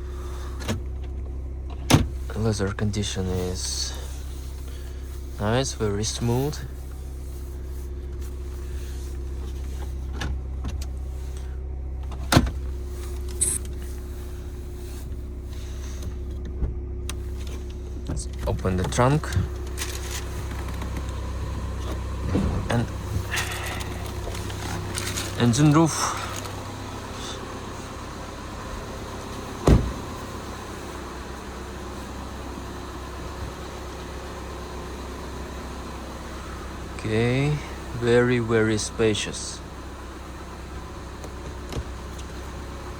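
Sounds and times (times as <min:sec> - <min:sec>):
diesel engine idling: 0:00.0 - 0:42.9
steady low hum: 0:00.0 - 0:42.9
heavy thump: 0:22.2 - 0:23.5, 0:29.4 - 0:30.3.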